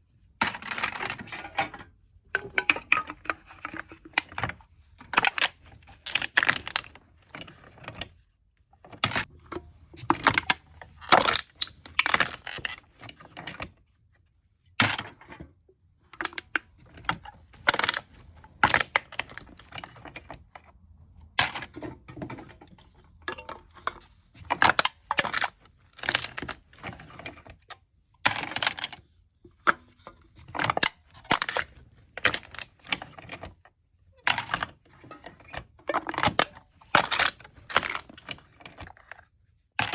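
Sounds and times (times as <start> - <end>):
aluminium cans being crushed: 0.4 - 7.0, 9.0 - 13.7, 17.2 - 20.5, 21.3 - 27.6, 28.2 - 29.0, 29.6 - 33.6, 34.2 - 39.1.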